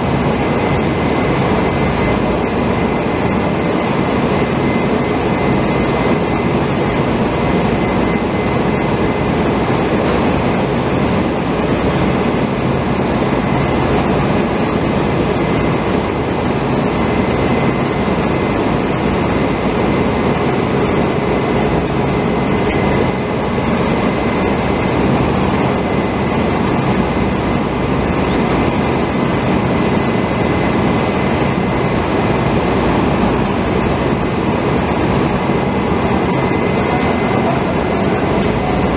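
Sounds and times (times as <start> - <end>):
loud machinery drone: 0.0 - 38.9
thin high whine: 33.0 - 38.9.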